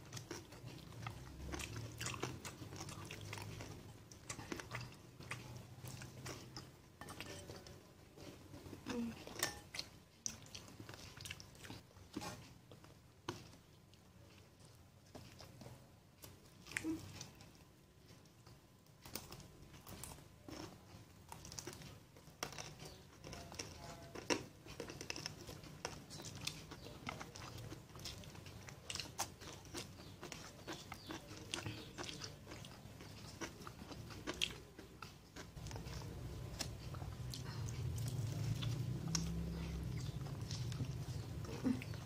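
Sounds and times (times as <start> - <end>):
chewing and crunching food: 0.0 - 42.0.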